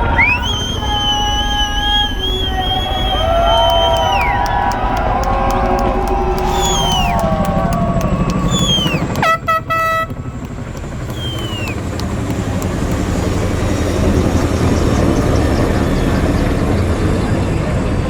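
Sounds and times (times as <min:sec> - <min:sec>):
falling whistle: 0:00.0 - 0:09.4, 0:11.1 - 0:11.9
crowd noise: 0:00.0 - 0:09.5
helicopters rumbling: 0:00.0 - 0:18.0
air horn blast: 0:09.1 - 0:10.2.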